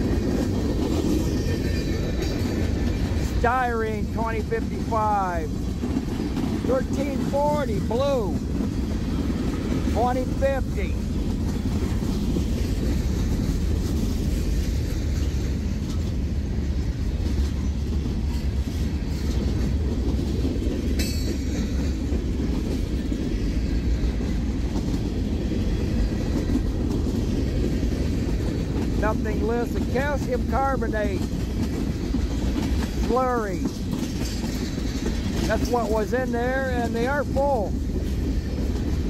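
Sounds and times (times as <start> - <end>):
train wheels rumbling on rails: 0.0 - 39.0
high wheel squeal: 1.2 - 2.6.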